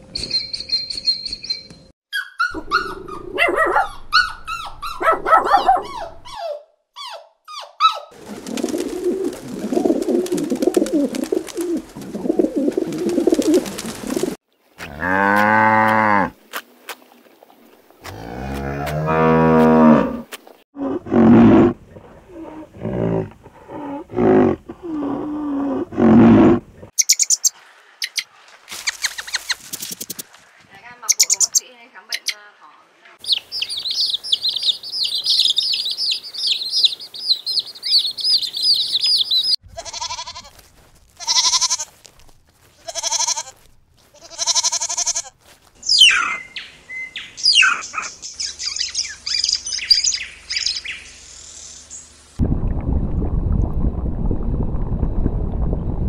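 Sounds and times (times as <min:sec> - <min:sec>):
noisy animal calling: 0:45.9 - 0:46.6.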